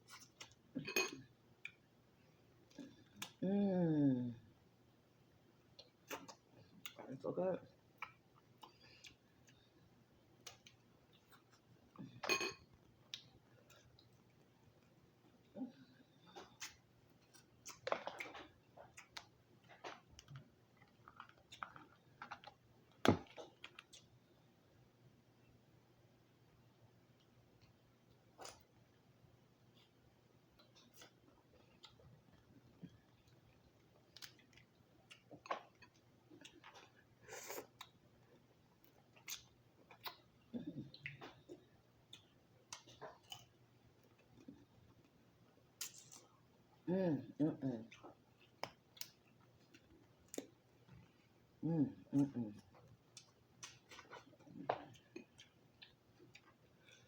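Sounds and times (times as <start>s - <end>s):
chewing and wet mouth smacks: 5.8s - 7.0s, 52.7s - 57.0s
chewing: 16.2s - 24.2s, 52.5s - 57.0s.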